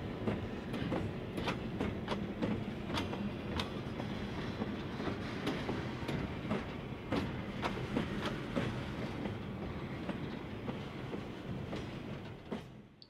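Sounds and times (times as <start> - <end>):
low rumble of train cars: 0.0 - 13.0.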